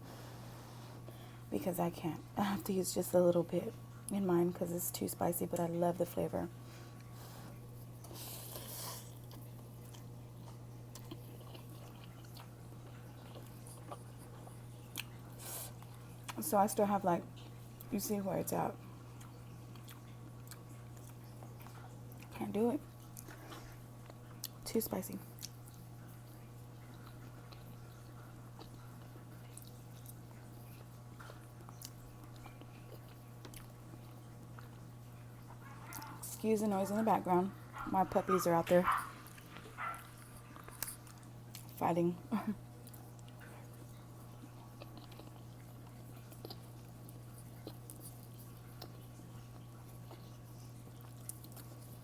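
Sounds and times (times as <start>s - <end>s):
person chewing noodles: 6.9s - 16.4s, 19.1s - 22.3s, 23.0s - 24.6s, 25.3s - 36.4s, 38.9s - 41.7s, 42.8s - 52.0s.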